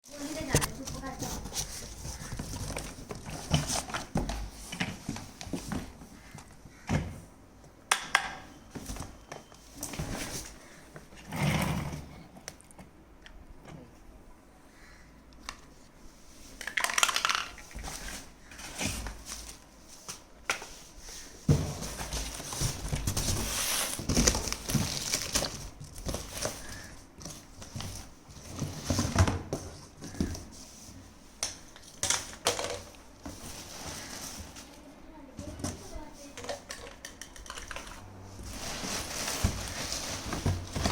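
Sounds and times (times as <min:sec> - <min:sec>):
cardboard rustling and crinkling: 0:00.1 - 0:07.3, 0:08.5 - 0:11.3, 0:16.0 - 0:40.9.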